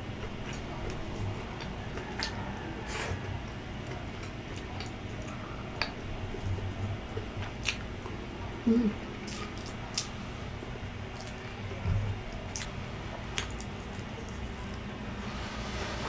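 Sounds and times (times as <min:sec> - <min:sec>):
chewing mouth clicks and smacks: 0:03.9 - 0:07.9, 0:12.5 - 0:12.7
low hum: 0:11.6 - 0:16.0.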